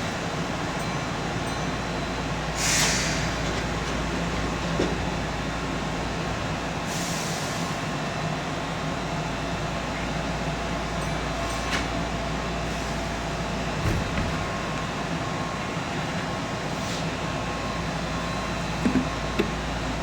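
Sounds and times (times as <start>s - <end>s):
train wheels and motors rumbling: 0.0s - 20.0s.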